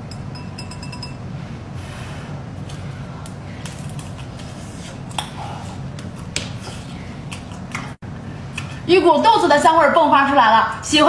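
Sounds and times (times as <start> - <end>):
steady low hum: 0.0 - 11.0
chewing with mouth clicks: 6.1 - 8.8.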